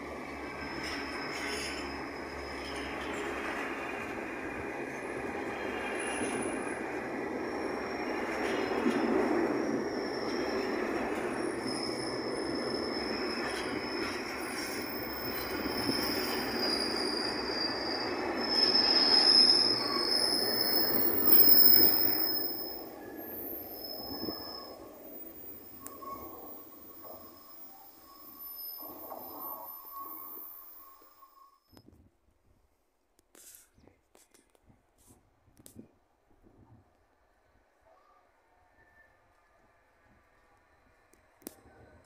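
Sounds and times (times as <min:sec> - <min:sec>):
freight train wheels rumbling on rail: 0:00.0 - 0:30.6
high-pitched wheel squeal: 0:00.3 - 0:03.9, 0:07.4 - 0:31.8.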